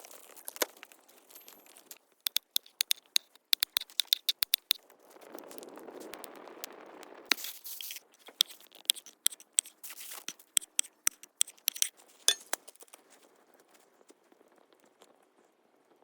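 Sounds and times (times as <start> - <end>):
utensils scraping: 2.3 - 4.8, 7.3 - 12.6.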